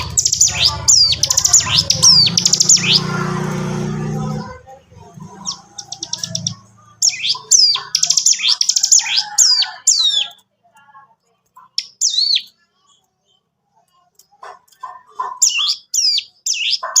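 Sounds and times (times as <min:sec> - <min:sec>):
bird whistling downward notes: 0:00.0 - 0:03.4.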